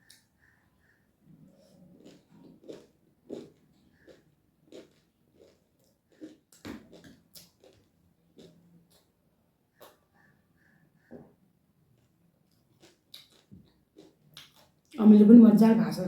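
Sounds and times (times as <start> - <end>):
wet chewing and lip smacks: 1.9 - 9.1, 12.0 - 15.0.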